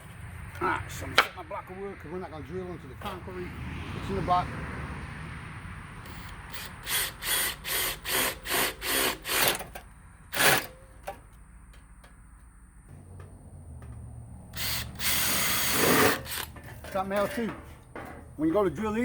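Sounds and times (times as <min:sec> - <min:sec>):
power drill bursts: 0:06.1 - 0:10.9, 0:14.6 - 0:16.9.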